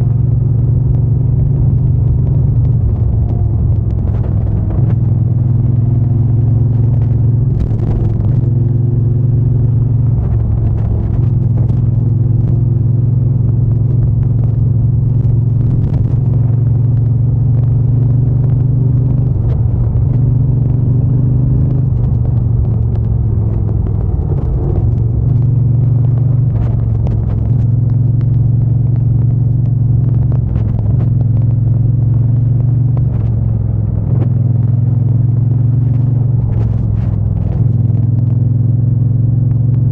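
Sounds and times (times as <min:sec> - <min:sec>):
motorcycle engine droning: 0:00.0 - 0:39.9.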